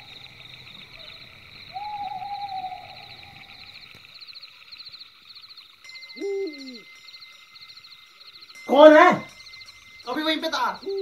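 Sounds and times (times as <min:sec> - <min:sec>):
crickets chirping: 0:00.0 - 0:11.0
long held tone: 0:05.9 - 0:11.0.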